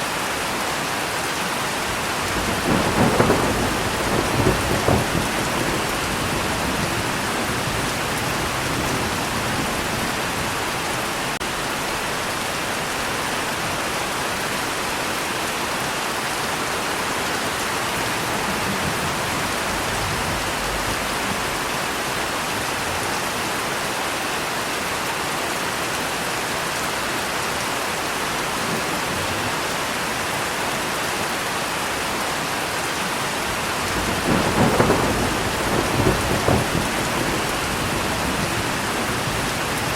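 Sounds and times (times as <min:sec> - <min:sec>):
steady rain: 0:00.0 - 0:39.9
low rumble of thunder: 0:01.9 - 0:11.3, 0:17.7 - 0:22.3, 0:33.6 - 0:39.9.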